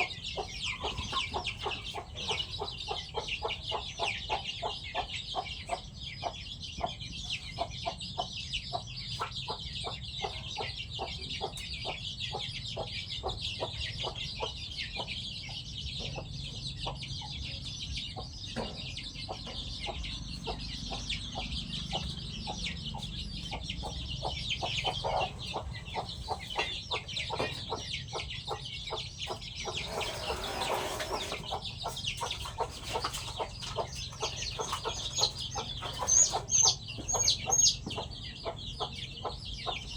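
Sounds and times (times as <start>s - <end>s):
chickens clucking and pecking: 0.0s - 39.9s.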